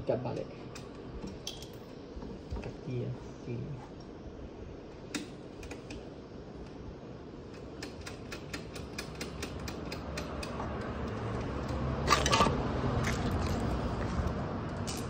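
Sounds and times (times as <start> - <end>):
rapid metallic clicks: 7.5 - 12.4.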